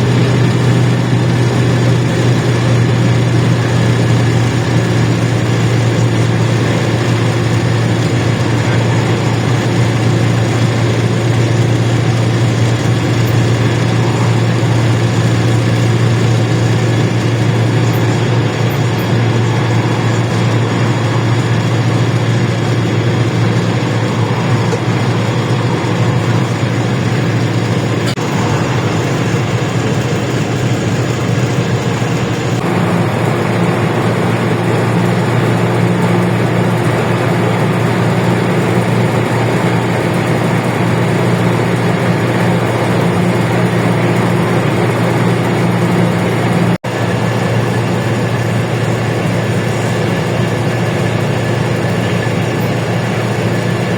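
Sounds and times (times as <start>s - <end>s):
bus engine humming: 0.0s - 53.9s.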